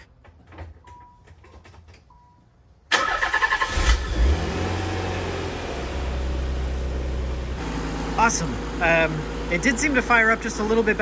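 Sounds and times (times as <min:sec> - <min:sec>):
car engine idling: 0:03.0 - 0:11.0.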